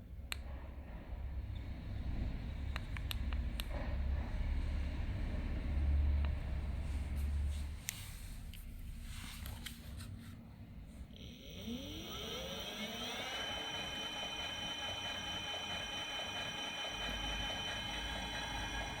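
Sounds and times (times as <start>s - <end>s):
electric hub motor whining: 11.2s - 19.0s.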